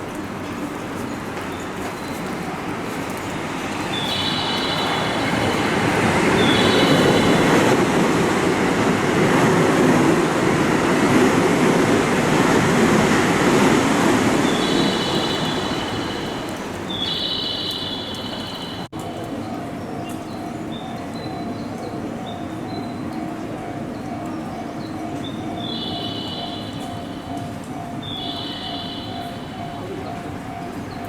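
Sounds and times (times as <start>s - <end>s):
electric train running: 0.0s - 19.6s.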